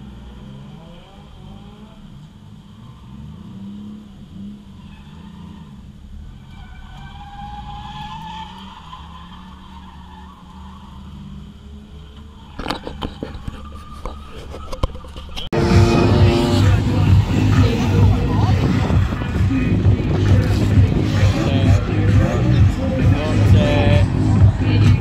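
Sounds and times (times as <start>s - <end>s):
car engine at low revs: 0.0s - 25.0s
tyre squeal: 4.7s - 16.8s.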